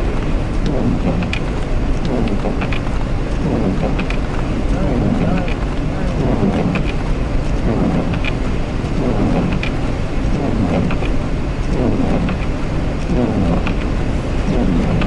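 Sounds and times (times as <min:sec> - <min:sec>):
truck cab rumble: 0:00.0 - 0:15.0.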